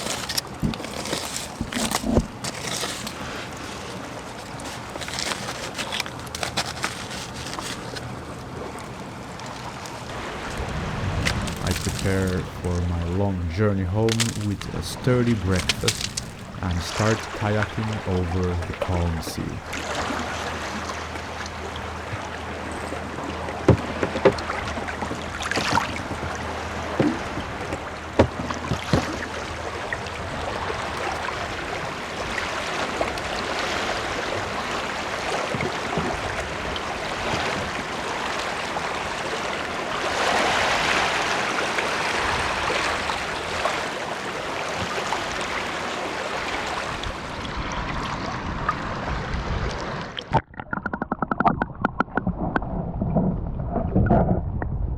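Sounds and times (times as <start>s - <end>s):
paddle strokes splashing: 0.0s - 8.3s, 9.4s - 20.8s
water washing along hull: 0.0s - 54.9s.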